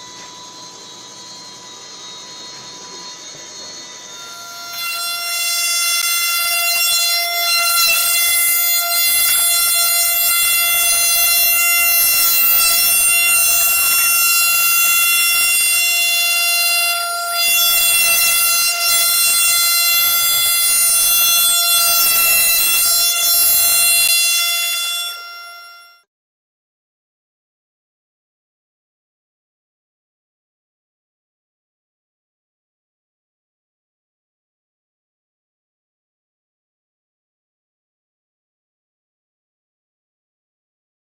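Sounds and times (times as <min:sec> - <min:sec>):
cnc router high-pitched whine: 0:00.0 - 0:26.0.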